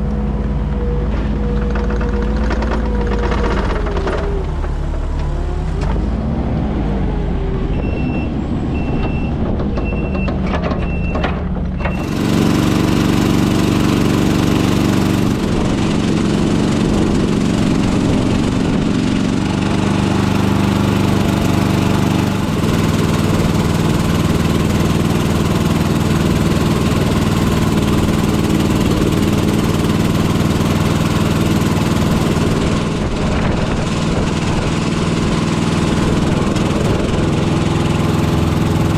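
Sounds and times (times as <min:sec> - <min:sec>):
engine humming: 0:00.0 - 0:38.9
short high beeps: 0:07.8 - 0:09.3.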